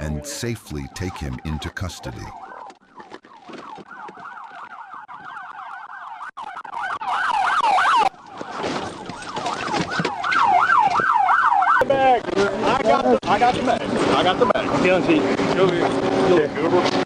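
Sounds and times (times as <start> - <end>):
police siren yelping: 3.8 - 8.1, 9.2 - 11.8.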